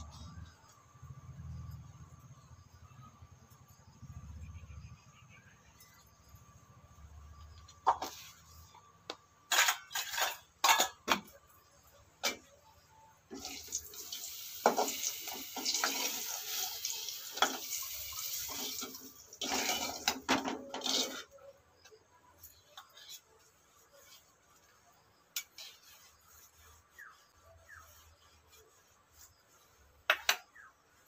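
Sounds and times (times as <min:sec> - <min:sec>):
water splashing and pouring: 0:13.3 - 0:21.3.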